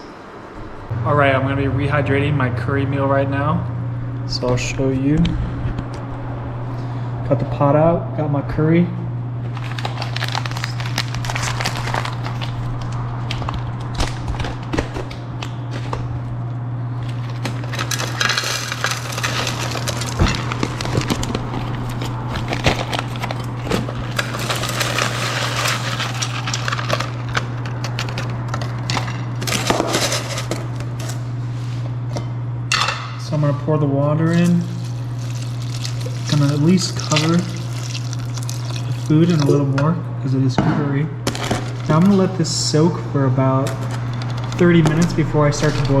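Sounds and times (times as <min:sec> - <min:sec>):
plastic bag crinkling: 0:09.5 - 0:16.2, 0:17.0 - 0:31.2, 0:34.2 - 0:39.6, 0:41.3 - 0:42.4, 0:43.6 - 0:46.0
dry food rattling into pot: 0:17.3 - 0:30.6, 0:34.4 - 0:39.5.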